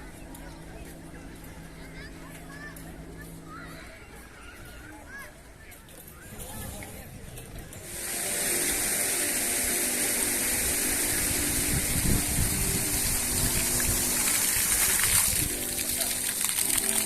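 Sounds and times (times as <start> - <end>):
sea surf washing on beach: 7.9 - 17.0.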